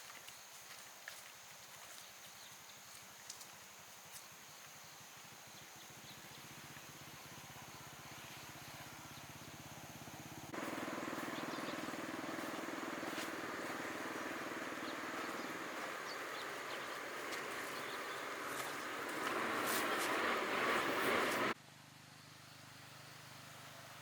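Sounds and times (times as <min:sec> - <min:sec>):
engine running with fast pulse: 0:05.8 - 0:24.0.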